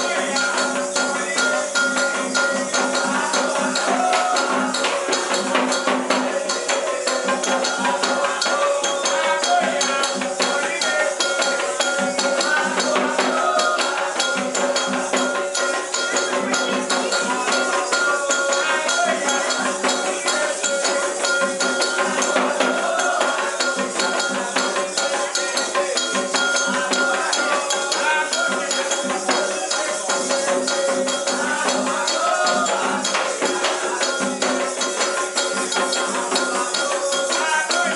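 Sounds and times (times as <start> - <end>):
shaken rattle percussion: 0.0 - 37.9.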